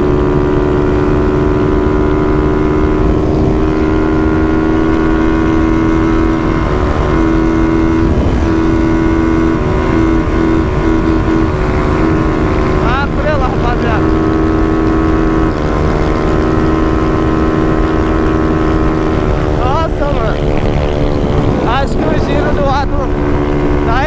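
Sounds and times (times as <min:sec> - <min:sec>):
motorcycle engine at high revs: 0:00.0 - 0:24.0
wind rushing: 0:13.9 - 0:24.0.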